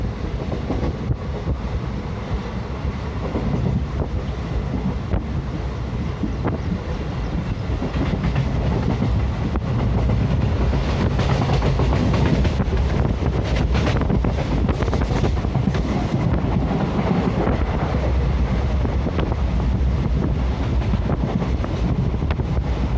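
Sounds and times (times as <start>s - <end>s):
train rumble: 0.0s - 22.9s
train wheels clattering over joints: 6.3s - 22.6s.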